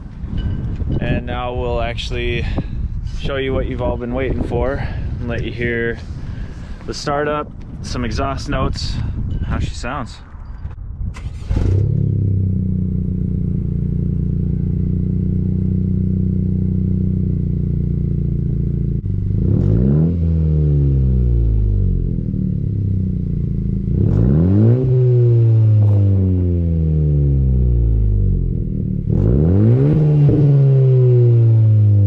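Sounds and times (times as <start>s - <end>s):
car engine idling and revving: 10.7s - 32.0s.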